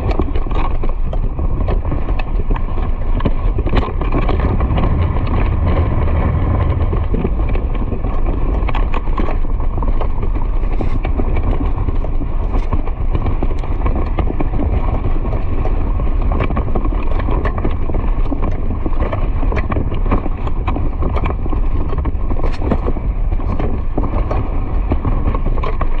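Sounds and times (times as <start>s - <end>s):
loud low rumble: 1.4s - 10.8s.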